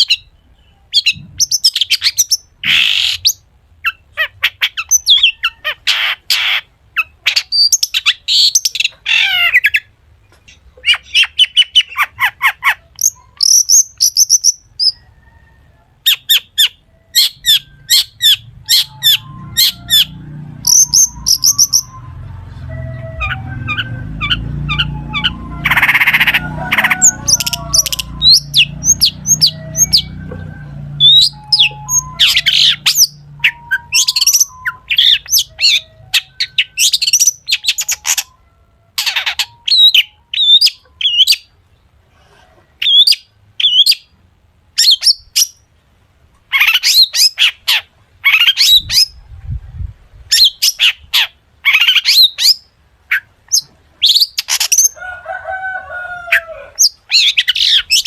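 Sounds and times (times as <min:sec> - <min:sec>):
shrike singing varied song: 0:00.0 - 0:41.9, 0:42.8 - 0:44.1, 0:56.3 - 0:58.0.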